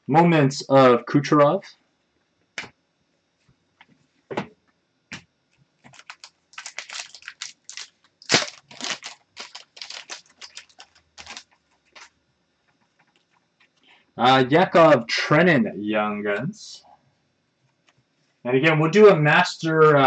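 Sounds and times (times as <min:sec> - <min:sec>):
trading cards clicking and rustling: 0:05.8 - 0:12.1.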